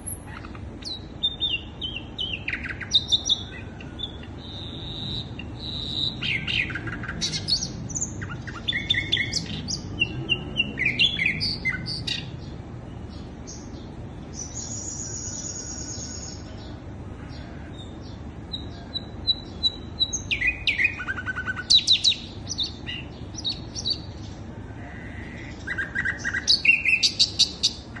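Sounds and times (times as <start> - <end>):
bird chirping and trilling: 0.0 - 28.0.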